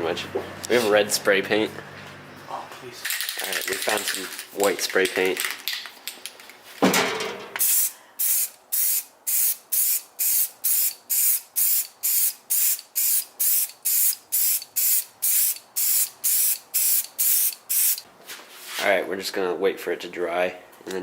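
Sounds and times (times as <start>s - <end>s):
spray paint hissing in short blasts: 7.6s - 18.0s.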